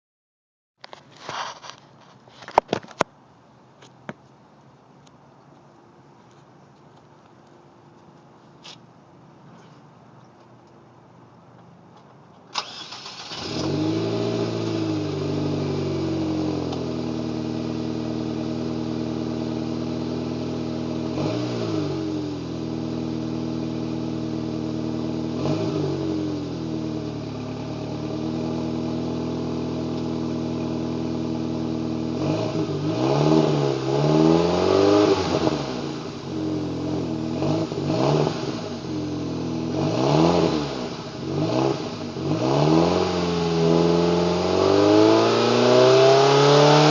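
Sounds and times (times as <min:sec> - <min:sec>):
car engine starting and revving: 0:12.5 - 0:46.9.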